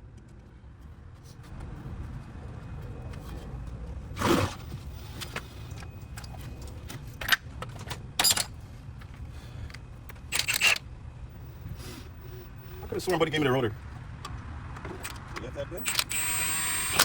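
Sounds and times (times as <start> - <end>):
tools clattering: 7.2 - 8.6.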